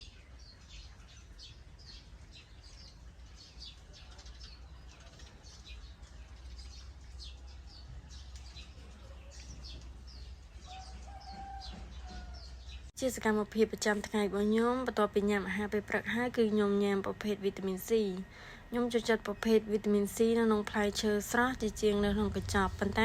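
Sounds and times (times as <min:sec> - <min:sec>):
small birds chirping: 0:00.0 - 0:23.0
steady low rumble: 0:12.7 - 0:23.0.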